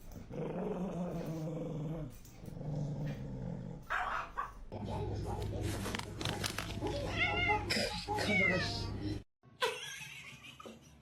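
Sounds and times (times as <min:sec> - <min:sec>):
dog growling: 0:00.2 - 0:04.0.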